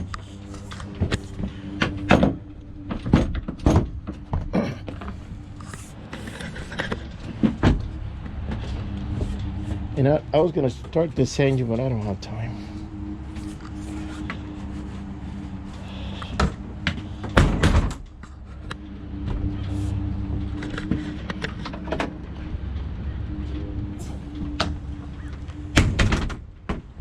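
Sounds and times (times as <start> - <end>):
objects knocking and clunking: 0.0 - 10.0
low mechanical hum: 0.0 - 27.0.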